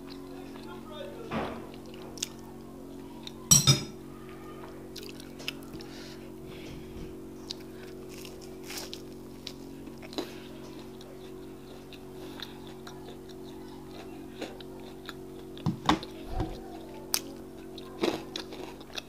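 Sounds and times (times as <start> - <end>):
biting and chewing fritter: 4.3 - 6.4, 7.1 - 19.0.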